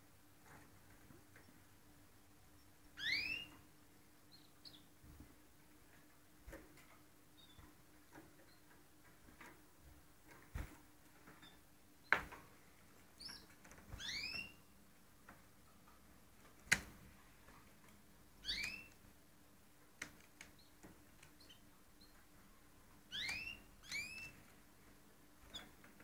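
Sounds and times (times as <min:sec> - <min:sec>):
canaries chirping: 0:02.6 - 0:05.0, 0:07.3 - 0:08.8, 0:13.1 - 0:14.7, 0:18.4 - 0:19.0, 0:20.4 - 0:22.4, 0:23.0 - 0:24.5.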